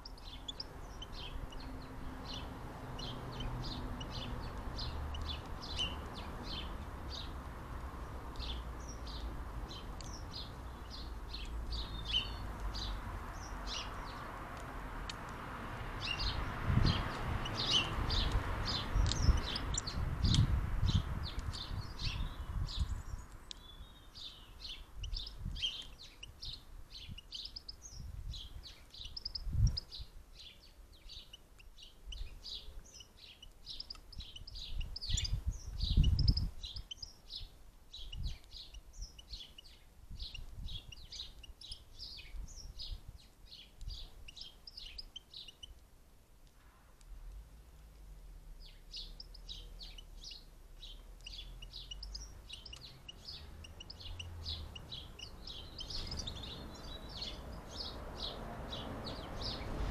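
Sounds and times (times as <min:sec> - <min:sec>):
goldfinches twittering: 0:16.0 - 0:22.9, 0:48.6 - 0:59.7.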